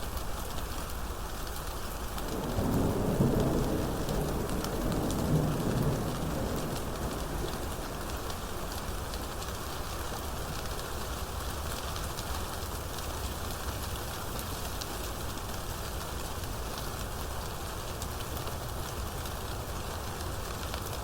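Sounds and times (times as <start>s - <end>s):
steady rain falling: 0.0s - 21.0s
thunder roll: 2.2s - 9.5s.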